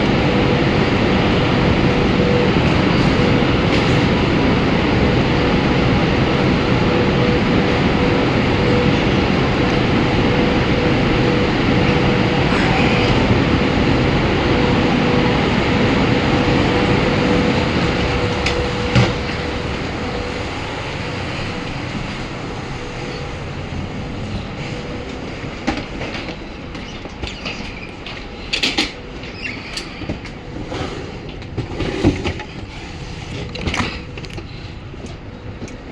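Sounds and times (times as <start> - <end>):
high-speed train rumbling: 0.0 - 35.9
clanks and squeaks: 26.0 - 34.4.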